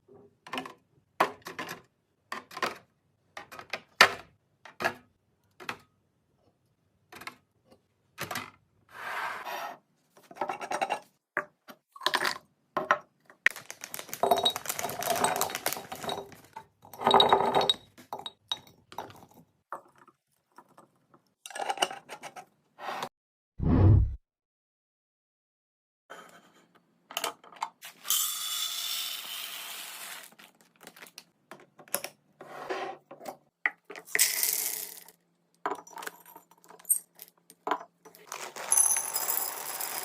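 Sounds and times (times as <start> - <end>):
containers clinking and knocking: 10.4 - 20.8.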